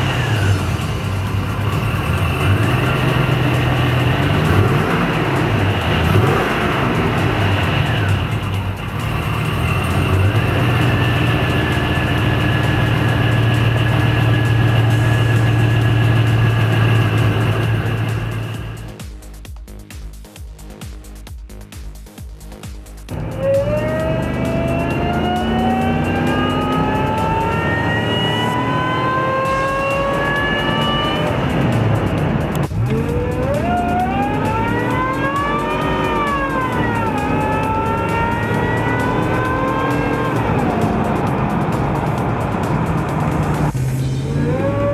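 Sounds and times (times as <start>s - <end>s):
car engine revving: 0.0s - 19.0s, 23.1s - 44.9s
supercharger whine: 0.0s - 19.0s, 23.1s - 44.9s.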